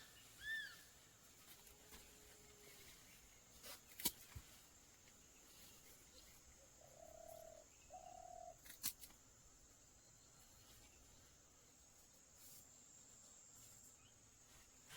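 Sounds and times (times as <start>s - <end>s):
bird calling: 0.0s - 1.0s.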